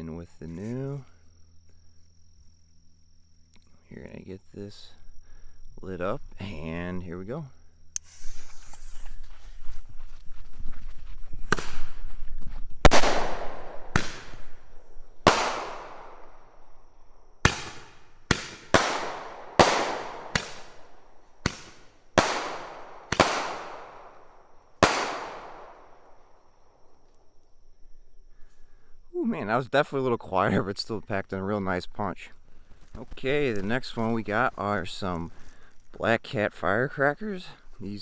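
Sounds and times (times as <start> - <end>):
roman candle firework bangs: 11.5 - 12.0, 12.8 - 16.8, 17.4 - 26.2.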